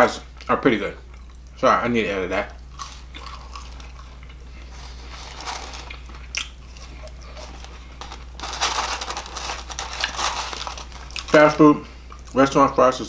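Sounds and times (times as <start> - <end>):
steady low hum: 0.0 - 13.0
person chewing crunchy food: 2.7 - 12.4.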